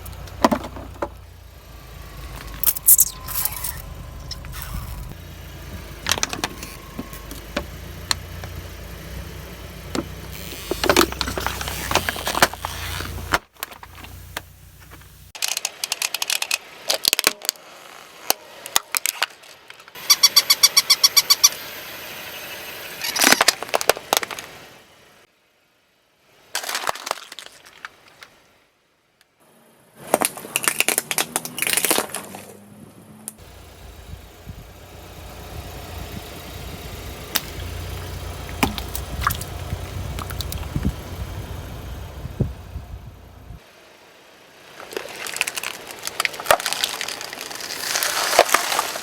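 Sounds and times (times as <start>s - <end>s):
car rumbling: 0.0s - 15.4s, 31.2s - 43.8s
tyres crushing objects: 44.8s - 49.0s.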